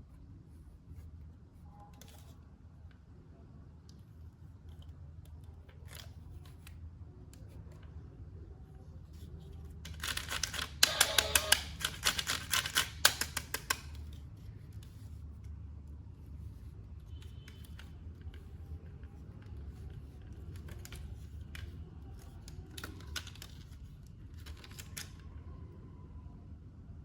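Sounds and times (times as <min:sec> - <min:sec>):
packaging clicks and snips: 0:09.8 - 0:14.2, 0:17.2 - 0:25.2.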